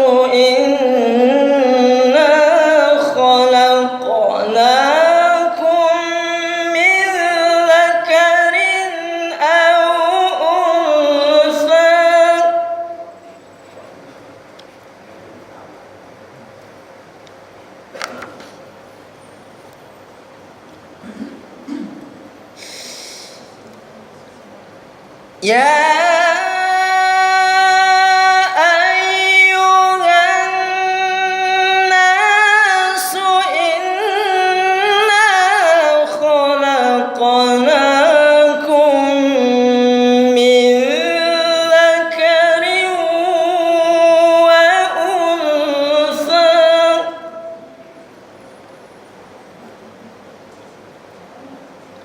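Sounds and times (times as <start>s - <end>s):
man reciting in melodic chant: 0.0s - 13.4s, 25.4s - 47.9s.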